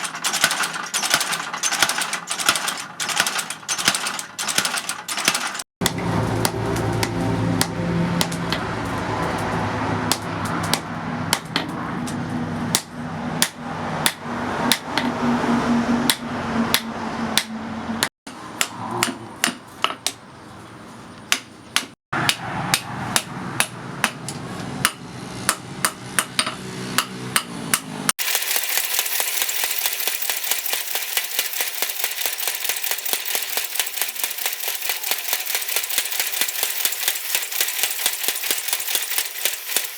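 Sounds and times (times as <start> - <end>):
hammer striking steel: 5.8 - 8.7, 21.3 - 28.3.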